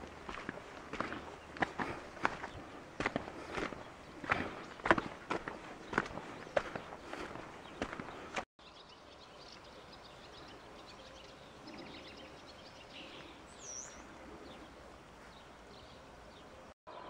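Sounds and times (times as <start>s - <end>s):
small birds chirping: 0.0s - 17.0s
faint outdoor hiss: 8.6s - 17.0s.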